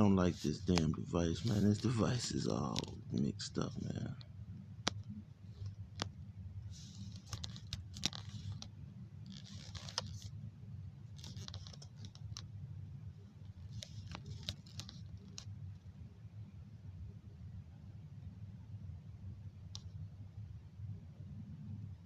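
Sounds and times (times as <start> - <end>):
steady low hum: 0.0 - 22.0
clicking and tapping on a device: 4.8 - 6.1, 19.7 - 20.0.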